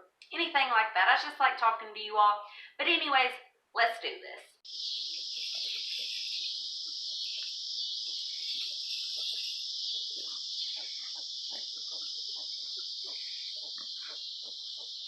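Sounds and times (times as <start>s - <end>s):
insect chorus: 4.6s - 15.0s
pigs grunting and squeaking: 4.8s - 15.0s.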